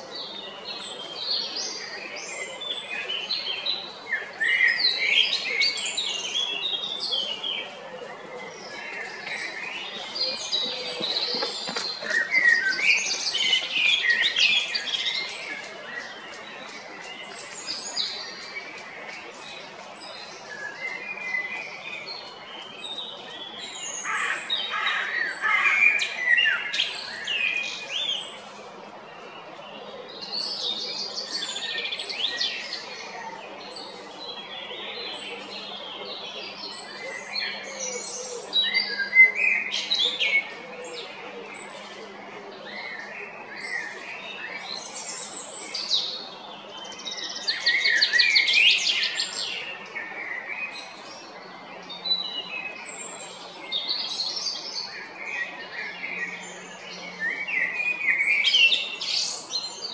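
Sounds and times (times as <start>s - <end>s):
blackbird singing: 8.4s - 18.6s.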